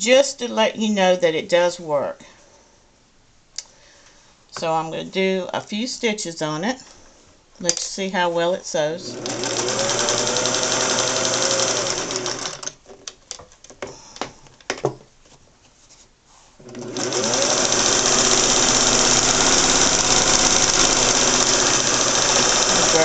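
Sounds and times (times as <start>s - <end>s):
sewing machine running: 9.1s - 12.8s, 16.6s - 23.0s
sharp clicks and knocks: 12.6s - 15.1s.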